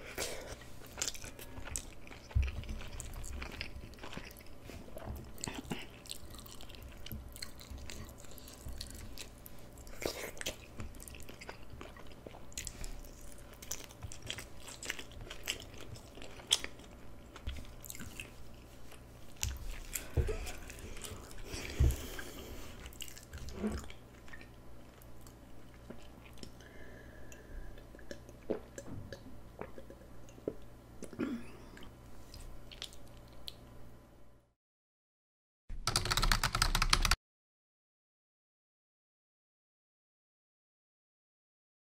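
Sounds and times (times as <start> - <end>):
person chewing crunchy food: 0.1 - 26.6.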